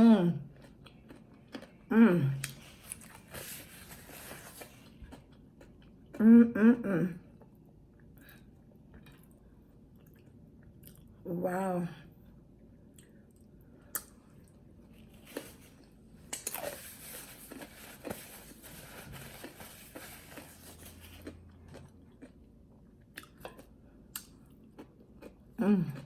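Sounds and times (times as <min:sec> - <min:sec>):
person chewing food: 0:00.4 - 0:06.2, 0:07.3 - 0:11.2, 0:12.6 - 0:26.0.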